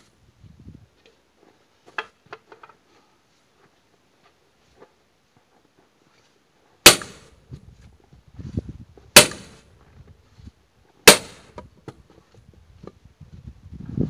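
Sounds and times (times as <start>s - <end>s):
axe striking firewood: 6.8s - 7.3s, 9.2s - 9.6s, 11.0s - 11.7s.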